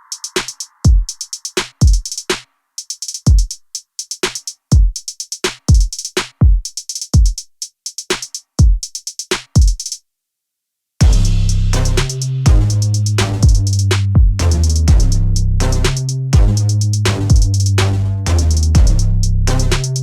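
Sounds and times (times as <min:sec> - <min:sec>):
electronic music with drum-machine beat: 0:00.0 - 0:04.4, 0:11.0 - 0:20.0.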